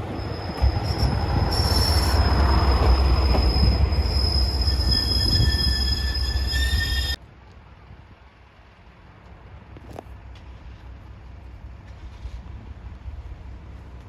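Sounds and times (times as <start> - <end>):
wheel squeal: 0.0 - 7.2
train rumbling on track: 0.0 - 14.0.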